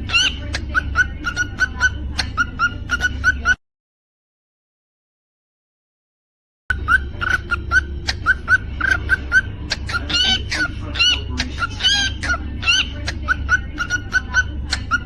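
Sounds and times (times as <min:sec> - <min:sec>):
cockatiel chirping: 0:00.0 - 0:03.6, 0:06.7 - 0:15.0.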